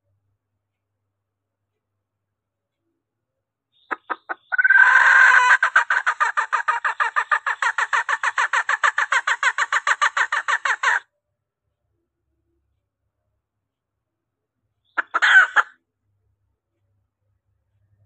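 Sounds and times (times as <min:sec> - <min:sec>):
junglefowl hen call: 0:03.9 - 0:11.0, 0:15.0 - 0:15.7.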